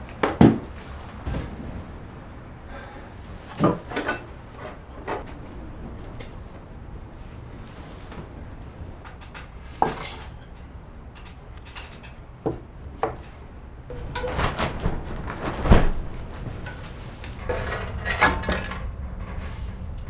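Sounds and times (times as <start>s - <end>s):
metal pots clanking: 9.0s - 12.2s, 13.9s - 20.0s
low steady rumble: 13.9s - 20.0s.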